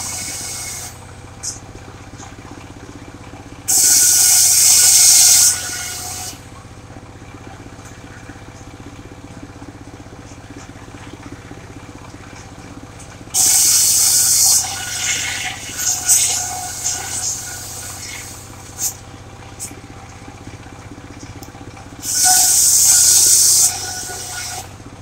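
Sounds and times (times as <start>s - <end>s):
sawmill engine running: 0.0s - 25.0s
saw blade cutting wood: 3.7s - 6.4s, 13.4s - 19.0s, 22.0s - 24.7s.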